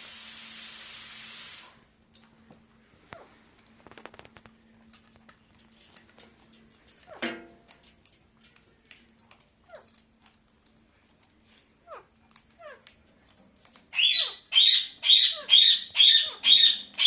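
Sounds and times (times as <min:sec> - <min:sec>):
faint steady hum: 0:00.0 - 0:17.0
parrot clicking and chirping: 0:11.8 - 0:17.0
parrot squawk: 0:13.9 - 0:17.0.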